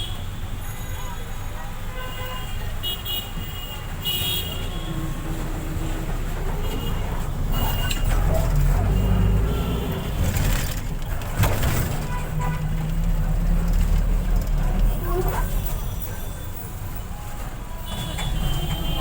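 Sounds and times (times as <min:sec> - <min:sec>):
vehicle engines rumbling: 0:00.0 - 0:19.0
car horn toot: 0:06.6 - 0:10.5, 0:17.8 - 0:19.0.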